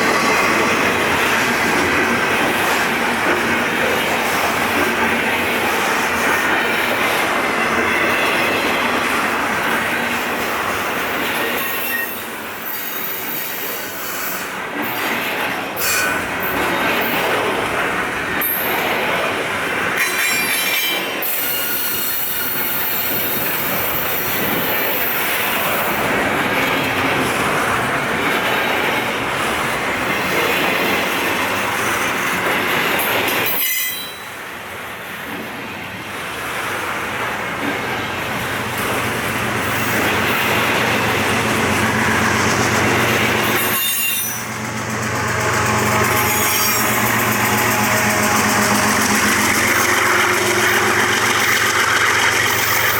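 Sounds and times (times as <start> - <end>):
train wheels rumbling and clicking: 0.0 - 52.9
wheel squeal: 21.2 - 25.2, 43.4 - 52.9.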